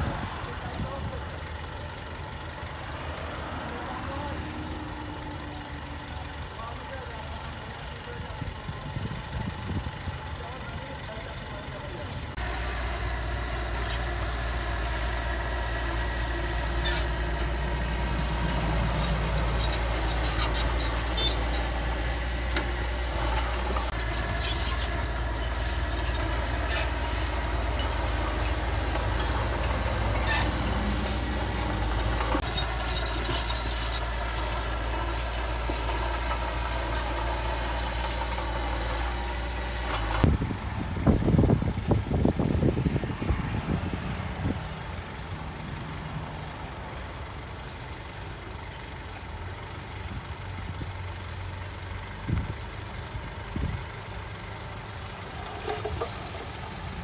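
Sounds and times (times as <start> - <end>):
diesel engine running: 0.0 - 57.0
high-pitched squeals: 12.8 - 40.1.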